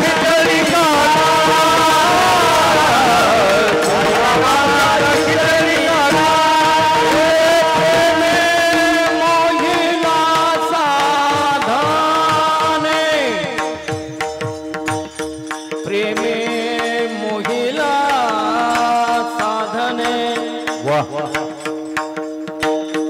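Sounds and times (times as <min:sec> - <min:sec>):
person singing long gliding notes: 0:00.0 - 0:13.8.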